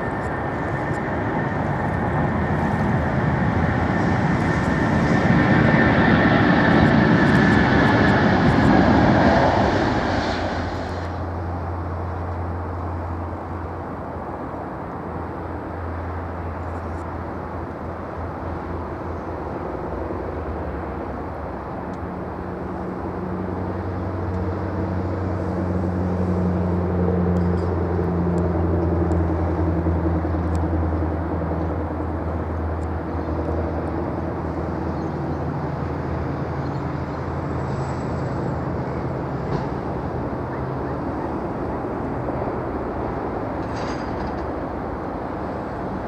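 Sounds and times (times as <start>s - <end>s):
jet engine high whine: 0.0s - 46.0s
jet engine low drone: 0.0s - 46.0s.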